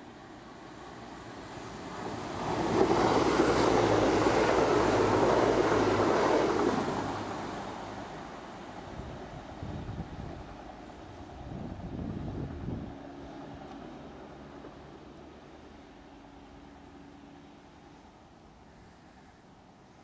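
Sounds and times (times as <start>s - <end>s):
train rushing past: 0.0s - 15.0s.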